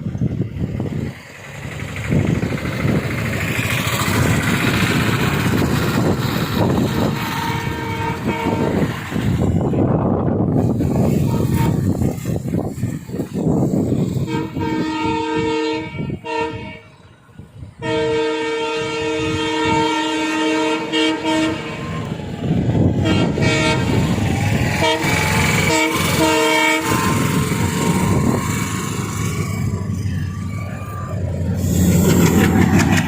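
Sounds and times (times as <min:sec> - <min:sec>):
moving train rumble: 0:00.0 - 0:33.0
train air horn blasts: 0:06.6 - 0:17.1, 0:17.7 - 0:22.2, 0:22.9 - 0:32.6.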